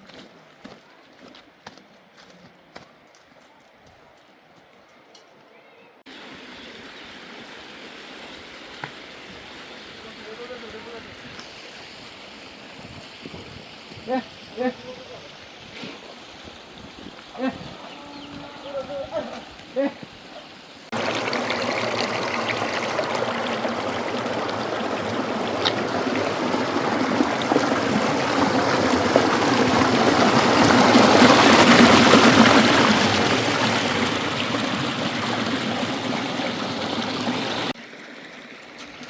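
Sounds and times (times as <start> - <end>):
water rushing: 6.1 - 17.5, 20.2 - 39.0.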